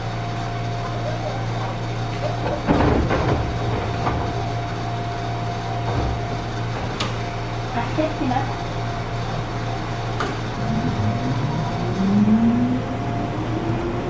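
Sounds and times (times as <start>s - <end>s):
train cabin hum: 0.9s - 14.0s
loud clatter: 2.4s - 7.7s.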